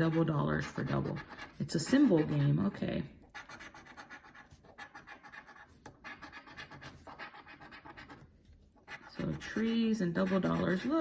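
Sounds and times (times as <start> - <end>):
lottery ticket scratching: 8.9 - 11.0.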